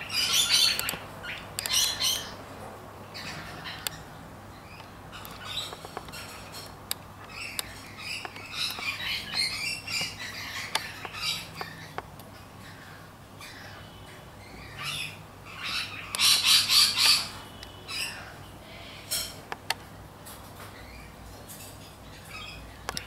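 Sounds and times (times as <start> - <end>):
harsh squawking bird calls: 0.0 - 2.5, 3.1 - 19.4
sharp clicks: 0.6 - 1.8, 4.8 - 12.3, 19.1 - 19.9.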